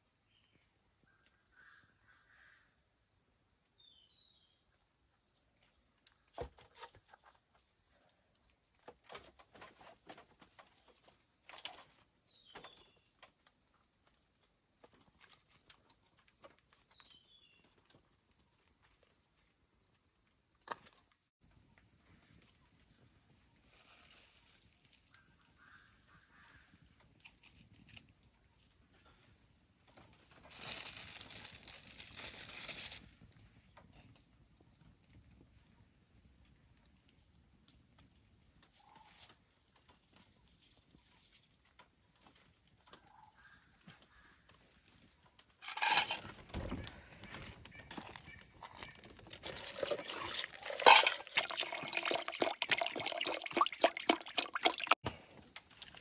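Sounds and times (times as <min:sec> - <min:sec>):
insects trilling: 0:21.6 - 0:54.9
leaves rustling: 0:30.3 - 0:33.2, 0:45.6 - 0:52.4.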